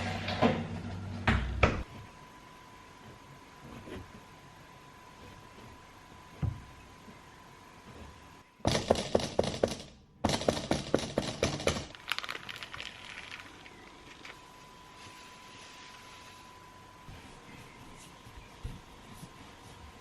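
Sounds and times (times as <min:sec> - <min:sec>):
sharp knocks and clatters: 0:08.7 - 0:11.9.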